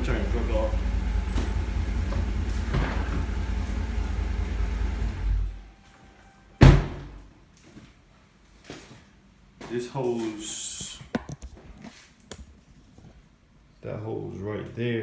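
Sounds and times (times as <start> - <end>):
truck engine idling: 0.0 - 5.6
door slam: 1.3 - 3.4, 6.6 - 7.2.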